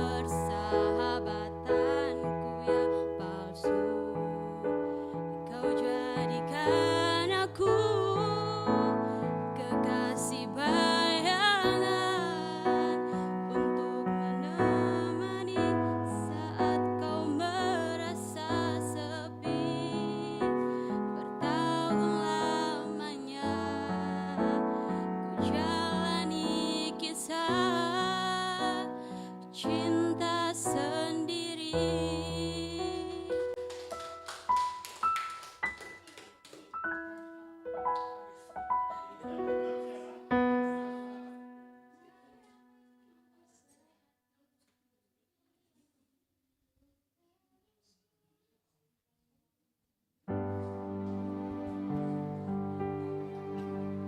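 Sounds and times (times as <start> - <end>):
person singing: 0.0 - 33.6
piano notes and chords: 0.0 - 42.1, 50.3 - 54.0
keyboard chords: 50.3 - 54.0.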